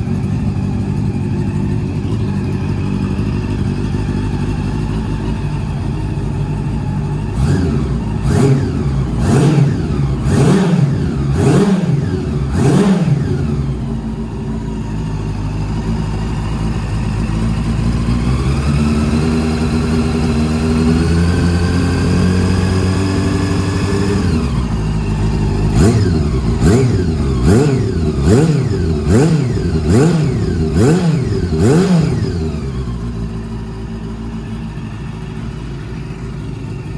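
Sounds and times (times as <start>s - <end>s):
motorcycle engine idling and revving: 0.0s - 36.9s.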